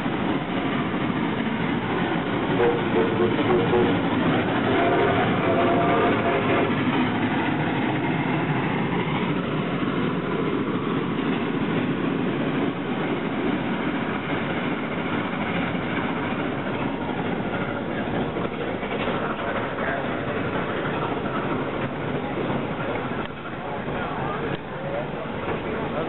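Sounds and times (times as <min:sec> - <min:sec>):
steam locomotive working: 0:00.0 - 0:26.0
train wheels rumbling on rails: 0:00.0 - 0:26.0.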